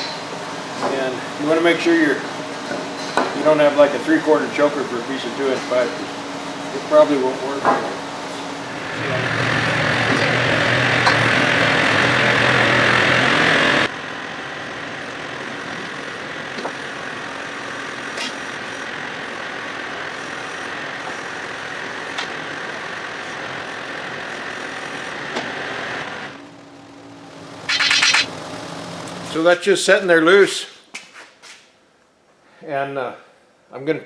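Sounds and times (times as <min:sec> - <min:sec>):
tractor engine running: 0:08.0 - 0:29.3.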